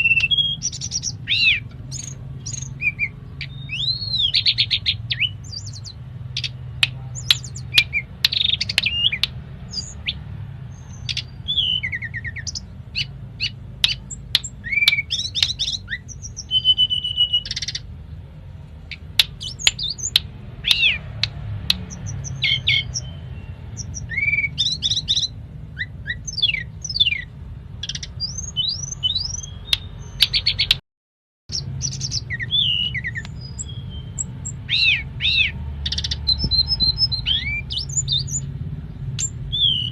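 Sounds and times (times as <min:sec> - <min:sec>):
flycatcher singing varied song: 0:00.0 - 0:17.9, 0:18.9 - 0:30.8, 0:31.5 - 0:39.9.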